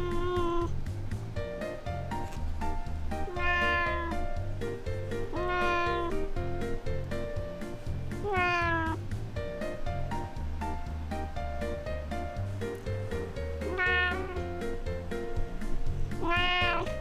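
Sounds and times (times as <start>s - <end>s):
cat meowing: 0.0s - 0.8s, 3.1s - 4.4s, 5.2s - 6.4s, 8.2s - 9.0s, 13.6s - 14.6s, 16.2s - 17.0s
background music with beat: 0.0s - 17.0s.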